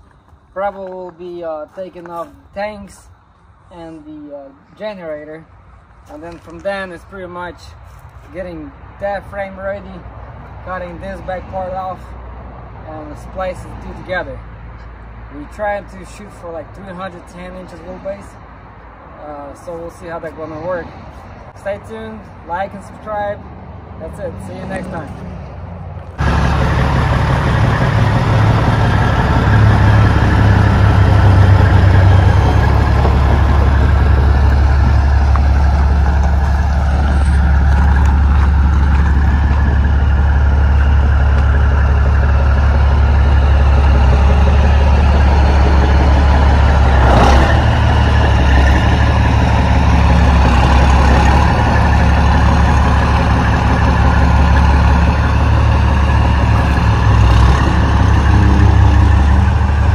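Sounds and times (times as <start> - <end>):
diesel truck engine idling: 26.0 - 59.9.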